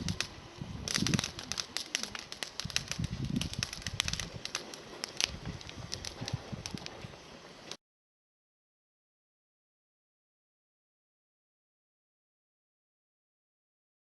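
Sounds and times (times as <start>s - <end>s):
campfire crackling and popping: 0.0s - 7.8s.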